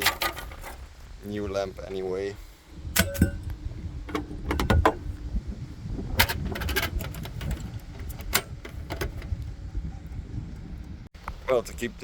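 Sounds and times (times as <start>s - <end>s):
steady low rumble: 0.9s - 12.0s.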